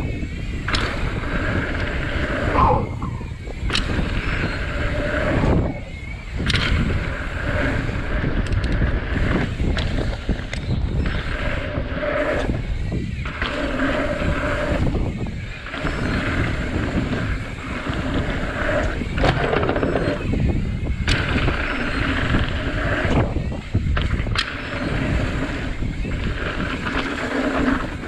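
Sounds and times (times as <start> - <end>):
bike tyre noise: 0.0 - 28.0
buzzing hum: 0.0 - 28.0
wind rumble on microphone: 0.0 - 28.0
bike knocks and rattles: 19.0 - 22.4.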